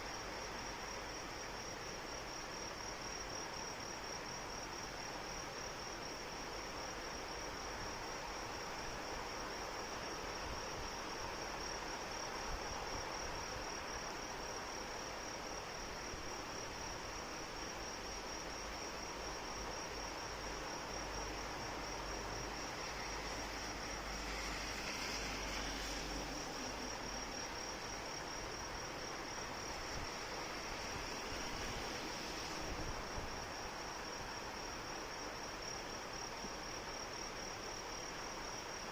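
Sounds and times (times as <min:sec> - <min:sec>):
high insect trill: 0:00.0 - 0:38.9
steady rain hiss: 0:00.0 - 0:38.9.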